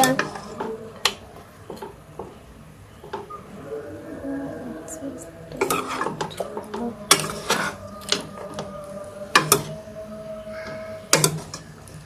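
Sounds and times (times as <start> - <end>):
pot and utensils clinking: 5.6 - 8.7, 9.3 - 9.8.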